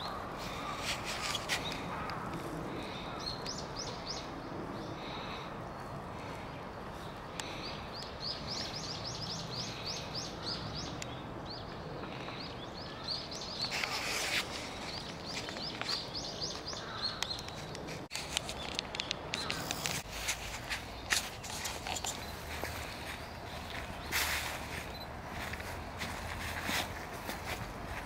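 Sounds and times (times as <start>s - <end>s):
outdoor background noise: 0.0s - 28.0s
sharp clicks: 15.5s - 20.1s.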